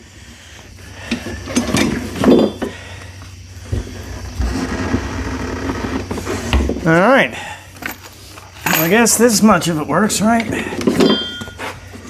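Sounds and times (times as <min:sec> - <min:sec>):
metal clinks and clanks: 0:07.8 - 0:09.2, 0:10.8 - 0:11.7.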